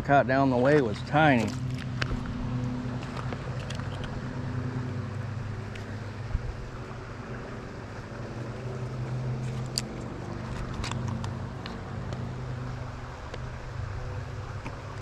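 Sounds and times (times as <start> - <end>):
low even hum: 0.0 - 15.0
creek water rushing: 0.4 - 15.0
wind on microphone: 6.2 - 6.9.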